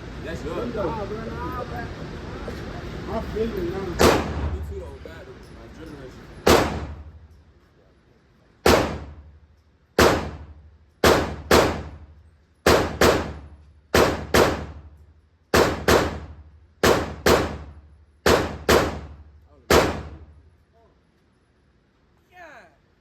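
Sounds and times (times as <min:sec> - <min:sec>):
gunshots: 0:04.0 - 0:04.6, 0:06.4 - 0:07.1, 0:08.6 - 0:09.2, 0:10.0 - 0:12.0, 0:12.6 - 0:14.9, 0:15.5 - 0:20.3.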